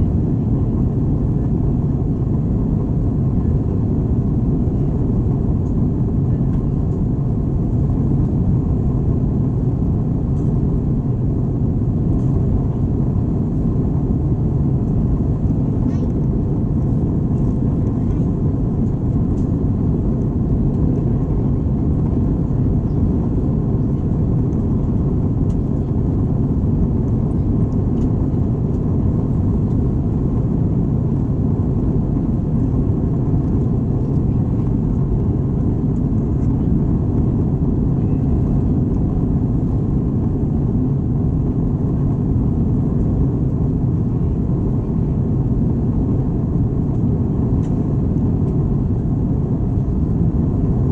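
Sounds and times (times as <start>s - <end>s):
airplane cabin engine rumble: 0.0s - 50.9s.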